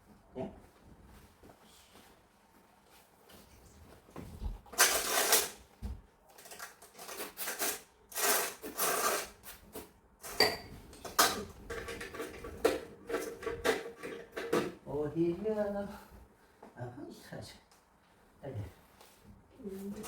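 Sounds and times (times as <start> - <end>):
hard objects clattering and scraping: 11.0 - 14.8.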